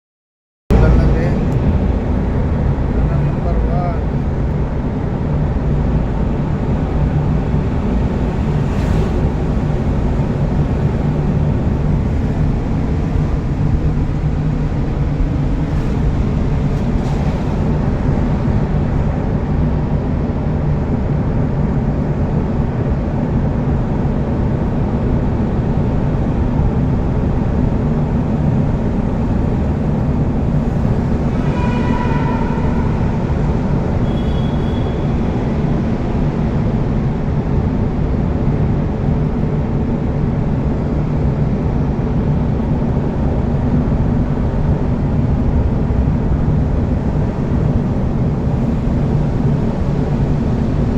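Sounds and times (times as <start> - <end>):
vehicle engine and tyre noise: 0.7 - 50.9
brief pitched tone: 34.0 - 35.2.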